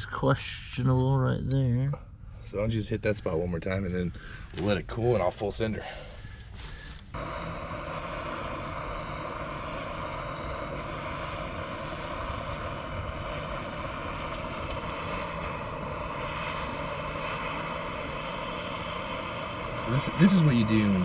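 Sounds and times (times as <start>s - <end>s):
torch flame burning: 6.8s - 21.0s.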